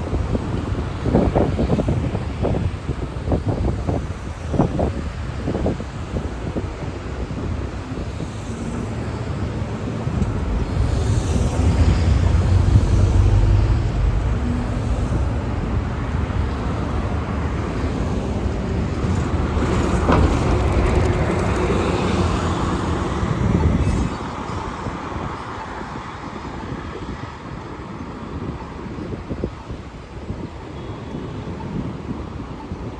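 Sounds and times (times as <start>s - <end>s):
street traffic passing: 0.0s - 32.9s
vehicle engine rumble: 3.2s - 24.4s.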